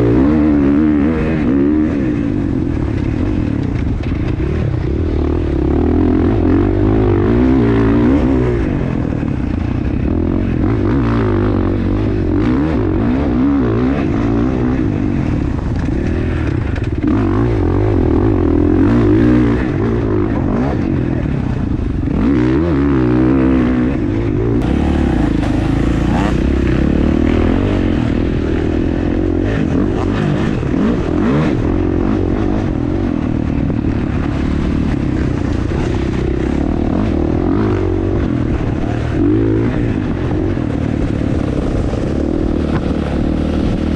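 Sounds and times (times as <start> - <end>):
dirt bike engine revving: 9.6 - 43.9.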